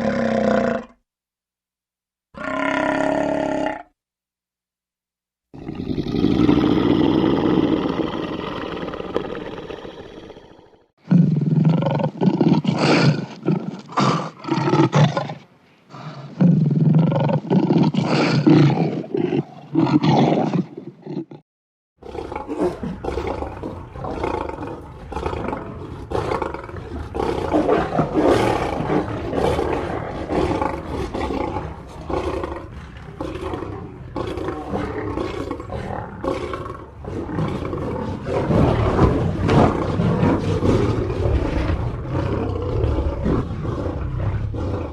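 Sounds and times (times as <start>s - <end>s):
lions roaring: 22.0s - 44.9s.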